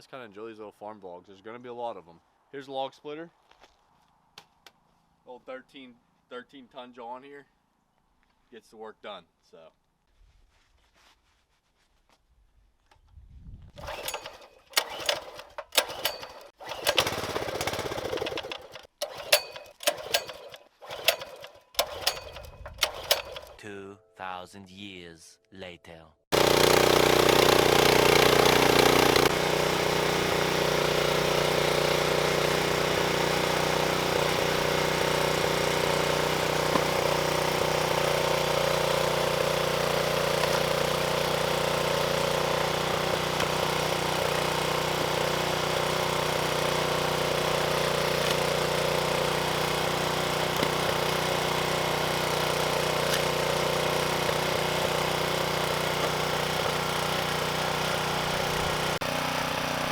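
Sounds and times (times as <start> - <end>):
small gas engine running: 13.8 - 23.6, 26.3 - 59.9.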